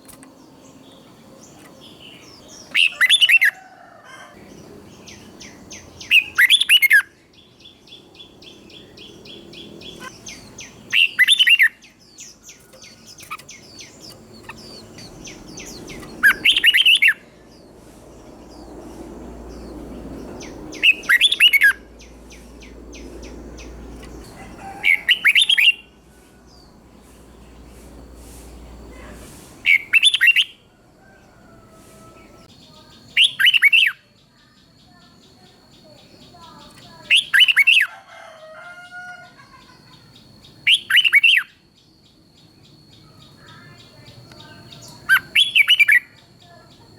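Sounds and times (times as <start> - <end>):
bird chirping and twittering: 0.0 - 3.7, 4.4 - 38.6, 39.4 - 46.9
bird whistling phrases: 15.6 - 17.2, 20.7 - 21.8, 29.6 - 30.6, 33.1 - 34.0, 37.0 - 37.9, 40.7 - 41.6, 45.0 - 46.2.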